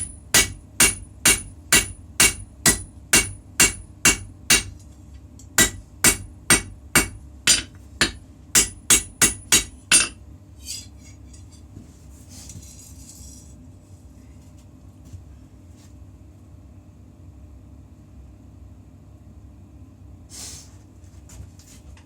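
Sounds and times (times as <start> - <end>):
hammer striking steel on anvil: 0.0 - 4.8, 5.6 - 10.9
steady low hum: 0.0 - 22.0
brief hiss: 20.3 - 20.8.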